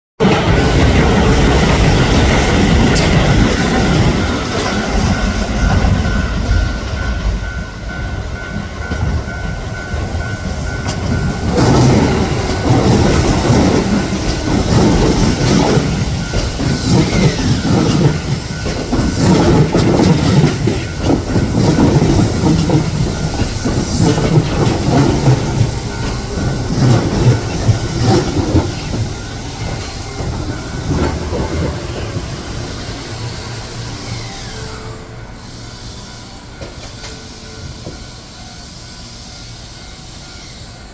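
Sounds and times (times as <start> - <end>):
train wheels clattering over rail joints: 0.2 - 32.8
electric train whine: 0.2 - 40.9.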